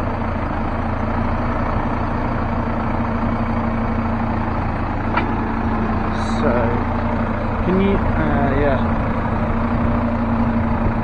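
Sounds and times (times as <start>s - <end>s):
excavator diesel engine idling: 0.0s - 11.0s.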